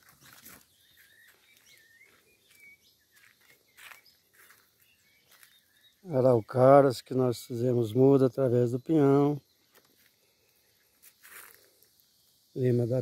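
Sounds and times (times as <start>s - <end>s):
faint birds chirping: 0.0s - 13.0s
soft rustles: 10.9s - 11.8s.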